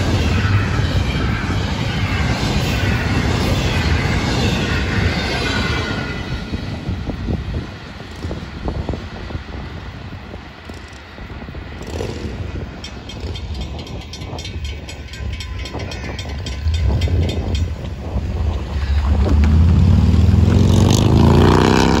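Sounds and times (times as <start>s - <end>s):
diesel locomotive engine rumble: 0.0s - 22.0s
crossing bell ringing: 11.9s - 19.8s.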